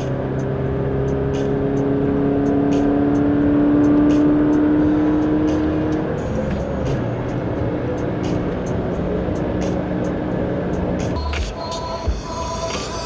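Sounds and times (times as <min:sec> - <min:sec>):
car engine at highway speed: 0:00.0 - 0:13.0
road noise: 0:00.0 - 0:13.0.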